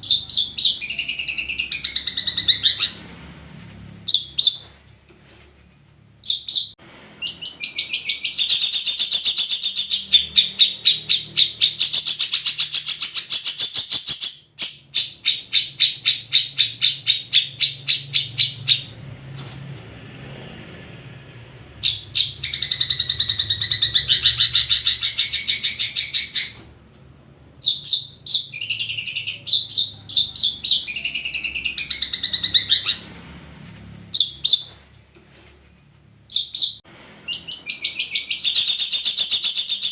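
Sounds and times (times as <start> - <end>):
bird chattering and trilling: 0.0 - 3.0, 6.2 - 19.0, 21.8 - 26.6, 27.6 - 33.1, 36.3 - 39.9.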